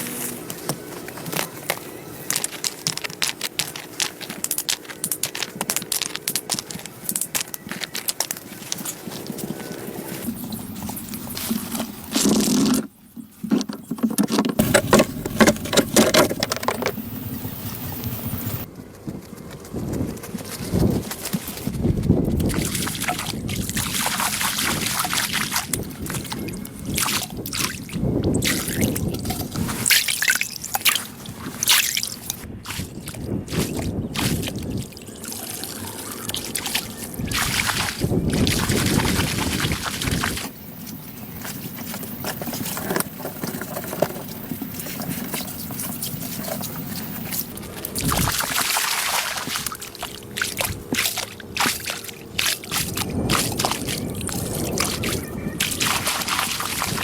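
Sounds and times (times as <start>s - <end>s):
water sloshing and trickling: 0.0s - 18.7s, 20.8s - 57.0s
splashing: 22.3s - 40.6s, 44.3s - 57.0s.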